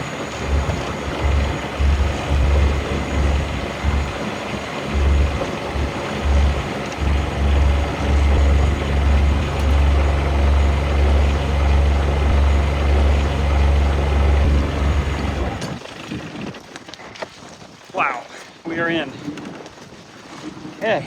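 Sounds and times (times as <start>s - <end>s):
wind buffeting microphone: 0.0s - 16.5s.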